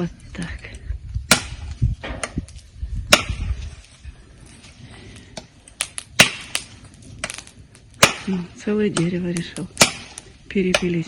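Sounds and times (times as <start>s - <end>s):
machete chopping into wood: 1.3s - 2.4s, 3.1s - 3.5s, 6.2s - 7.4s, 8.0s - 8.4s, 9.8s - 10.9s.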